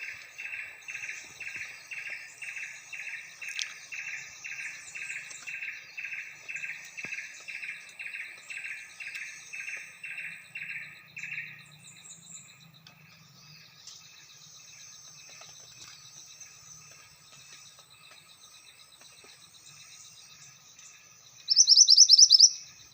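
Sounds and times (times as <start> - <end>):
high insect trill: 0.0 - 22.9
songbird calling: 0.0 - 22.9
scattered bird chirps: 21.3 - 22.9.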